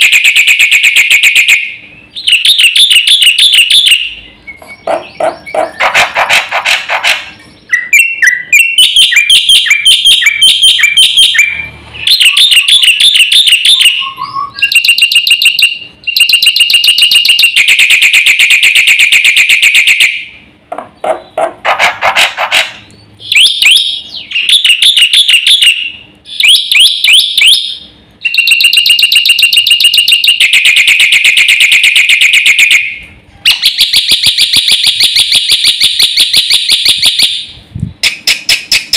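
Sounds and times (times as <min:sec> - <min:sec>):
starling singing buzzing trills: 0:01.2 - 0:06.2, 0:07.2 - 0:17.3.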